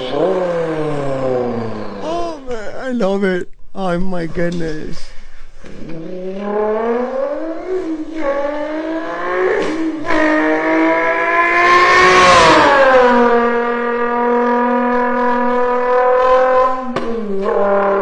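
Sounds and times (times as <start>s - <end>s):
man imitating car engine: 0.0s - 4.6s.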